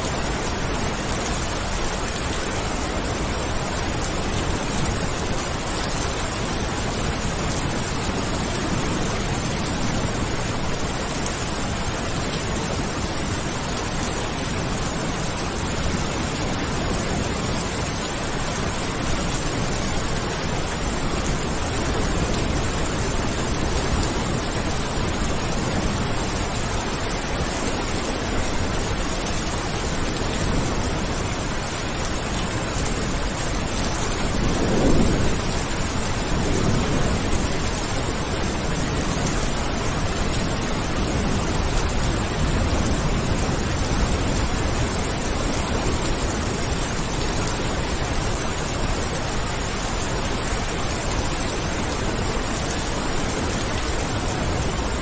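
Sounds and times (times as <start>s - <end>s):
heavy rain falling: 0.0s - 55.0s
thunder rumbling: 0.2s - 55.0s.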